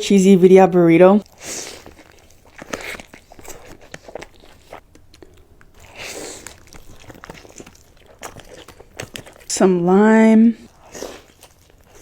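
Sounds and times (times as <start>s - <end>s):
crunching bite: 1.2s - 9.5s
biting and chewing food: 1.2s - 12.0s.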